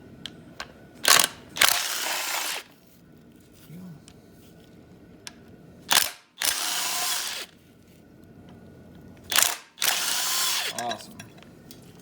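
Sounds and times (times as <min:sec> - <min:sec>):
impact wrench spinning bolts: 0:01.0 - 0:02.6, 0:05.9 - 0:07.5, 0:09.3 - 0:10.8.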